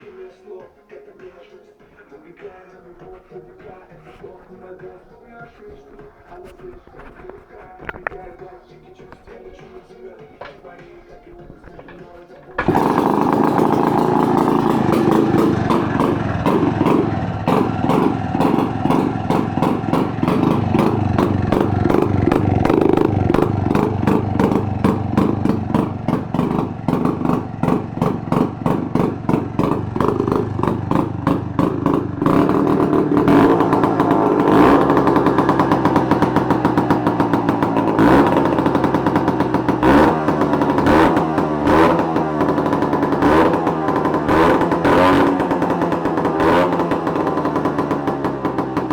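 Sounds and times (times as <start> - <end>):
motorcycle engine idling and revving: 11.8 - 48.9.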